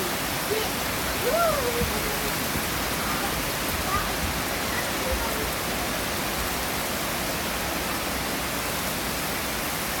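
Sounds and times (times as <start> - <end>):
heavy rain: 0.0 - 10.0.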